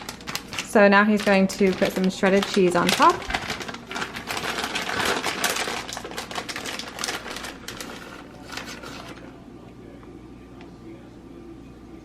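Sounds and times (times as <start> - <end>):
cheese sprinkling rustles: 0.0 - 9.4
plastic bag rustling: 0.0 - 9.4.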